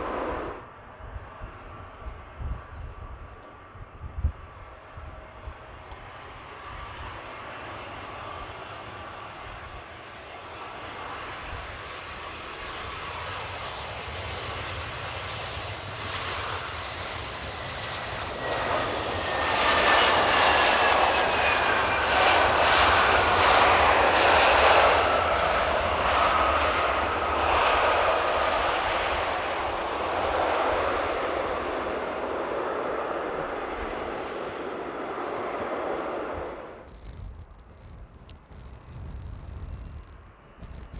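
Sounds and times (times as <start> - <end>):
wind rumble on microphone: 0.0 - 7.2, 17.2 - 40.9
jet airliner passing overhead: 0.0 - 40.9.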